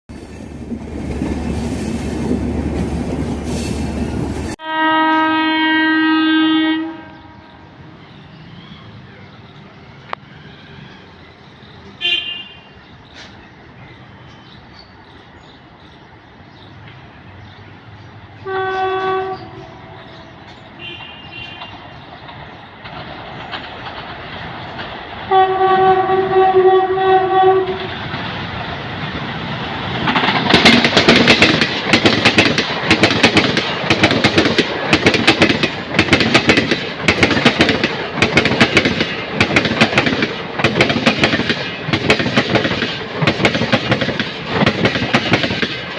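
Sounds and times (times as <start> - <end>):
train horn blasts: 4.6 - 7.7, 12.0 - 12.7, 18.4 - 21.8, 25.3 - 28.0
train wheels clattering over rail joints: 20.0 - 26.2, 27.8 - 45.9.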